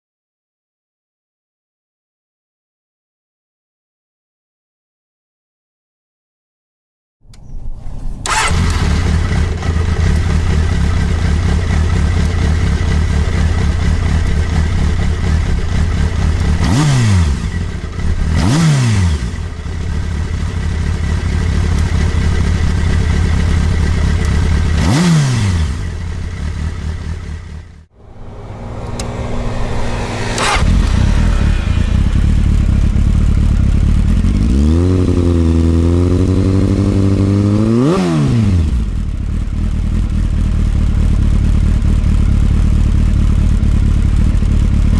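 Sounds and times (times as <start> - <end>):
motorcycle engine idling and revving: 7.4 - 44.9.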